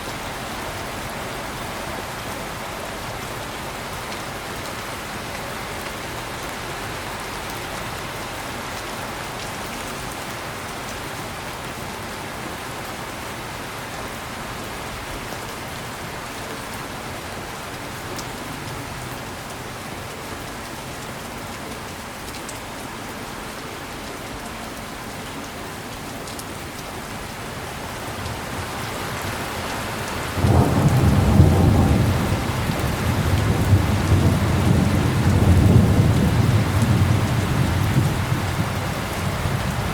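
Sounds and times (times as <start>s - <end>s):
heavy rain hissing: 27.2s - 39.9s
thunder rumbling: 30.0s - 39.9s.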